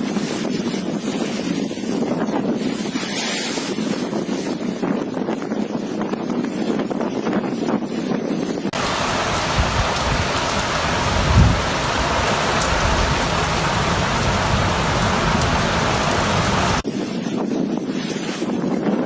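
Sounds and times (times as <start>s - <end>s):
heavy rain pouring: 8.8s - 16.8s.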